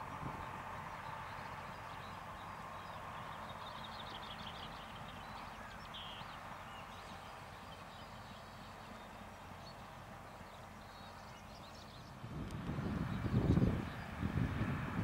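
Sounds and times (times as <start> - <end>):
distant train rumble: 0.0 - 15.0
small birds chirping: 0.1 - 14.2.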